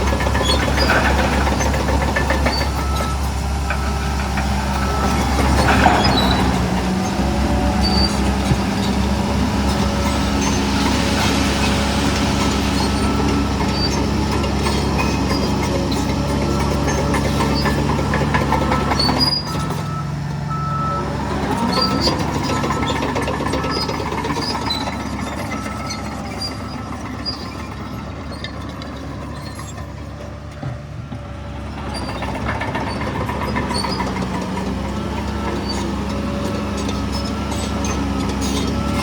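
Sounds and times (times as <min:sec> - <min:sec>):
diesel machinery running: 0:00.0 - 0:39.0.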